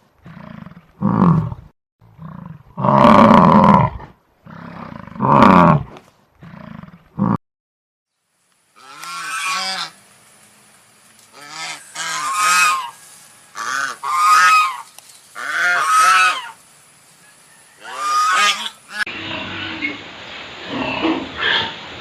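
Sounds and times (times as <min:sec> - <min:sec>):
goose honking: 0:08.8 - 0:10.0, 0:11.3 - 0:16.6, 0:17.8 - 0:19.1.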